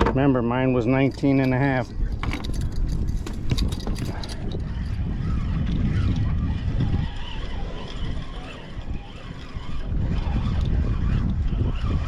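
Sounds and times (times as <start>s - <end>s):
water noise: 0.0s - 12.0s
wind rumble on microphone: 0.0s - 12.0s.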